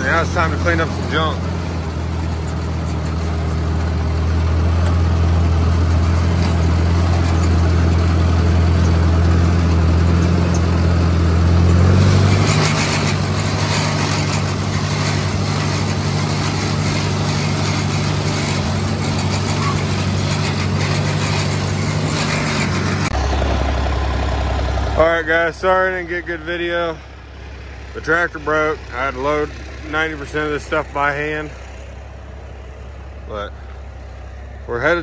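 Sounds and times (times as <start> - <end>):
engine running: 0.0 - 35.0.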